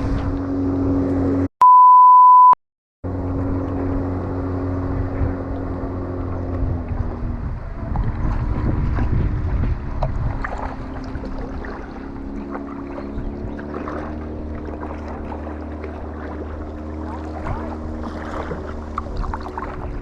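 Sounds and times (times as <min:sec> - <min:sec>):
wind buffeting microphone: 0:00.0 - 0:01.2, 0:03.1 - 0:20.0
boat engine running: 0:00.0 - 0:01.5, 0:03.0 - 0:20.0
small water splashes: 0:04.7 - 0:20.0.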